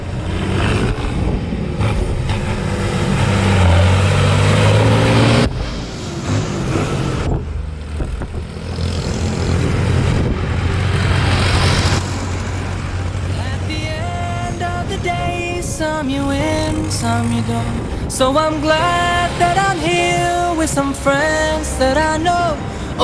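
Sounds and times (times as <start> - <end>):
tractor engines driving past: 0.0 - 15.7.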